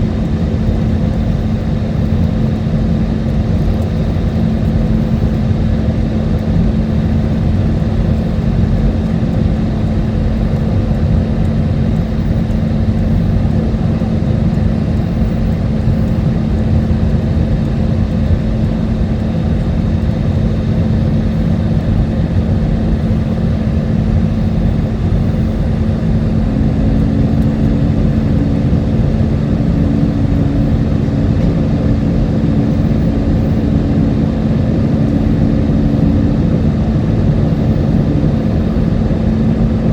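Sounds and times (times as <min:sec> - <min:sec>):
airflow rush in aircraft cabin: 0:00.0 - 0:39.9
low hum: 0:00.0 - 0:39.9.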